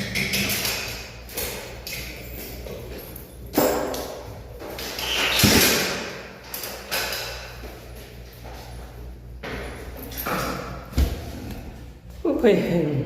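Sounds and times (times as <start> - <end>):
knocks and thuds: 10.9 - 11.4.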